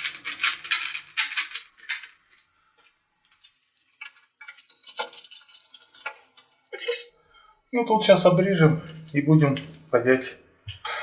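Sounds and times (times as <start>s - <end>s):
pipe clamp clicking and rattling: 3.8s - 6.7s.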